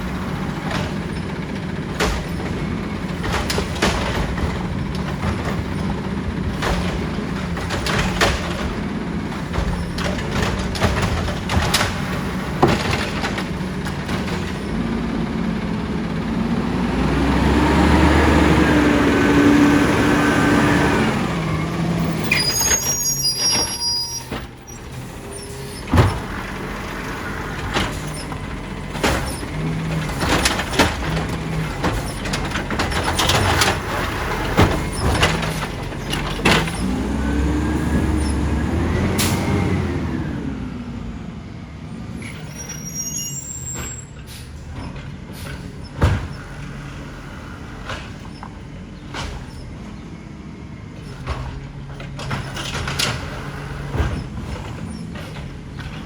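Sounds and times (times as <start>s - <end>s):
sharp knocks and bangs: 0.0s - 14.8s, 25.8s - 38.2s
garbage truck diesel engine: 0.0s - 56.0s.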